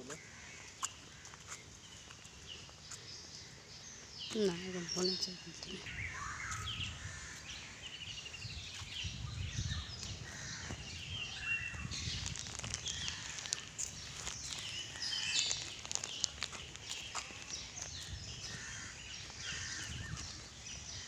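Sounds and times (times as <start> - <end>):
birds chirping and calling: 0.0 - 21.0
trilled bird calls: 8.8 - 20.5.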